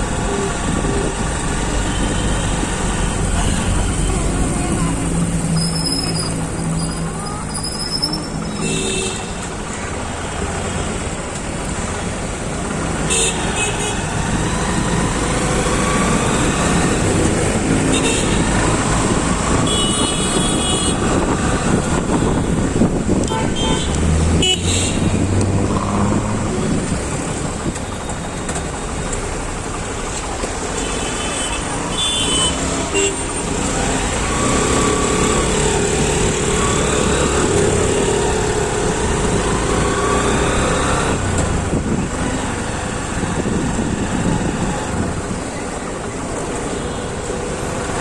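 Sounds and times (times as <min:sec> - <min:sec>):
city road traffic: 0:00.0 - 0:48.0
vehicle horns honking: 0:08.4 - 0:09.4, 0:13.1 - 0:14.0, 0:17.9 - 0:18.5, 0:19.6 - 0:21.1, 0:23.2 - 0:25.2, 0:30.8 - 0:33.5.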